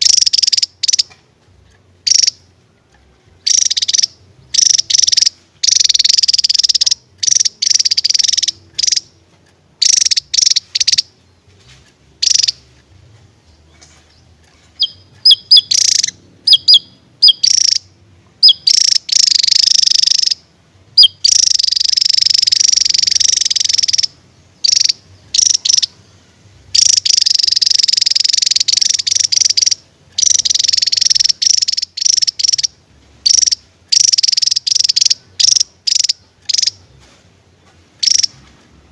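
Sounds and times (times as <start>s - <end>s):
bird buzzy chattering song: 0.0s - 38.9s
short sharp bird chirps: 13.7s - 17.8s.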